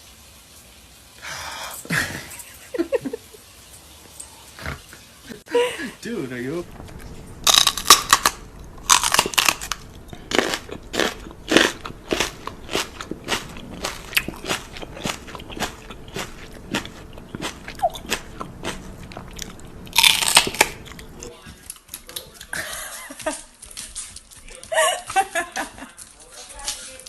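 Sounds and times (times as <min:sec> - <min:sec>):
crunchy chewing: 0:06.7 - 0:27.0.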